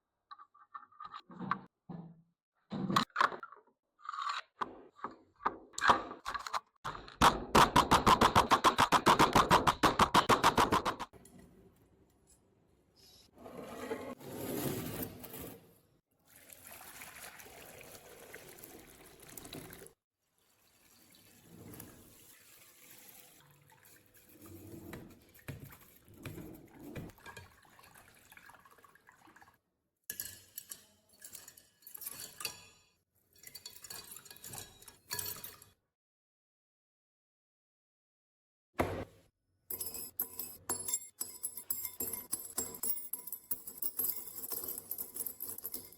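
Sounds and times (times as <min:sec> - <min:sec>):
liquid sloshing and pouring: 0:16.2 - 0:29.7.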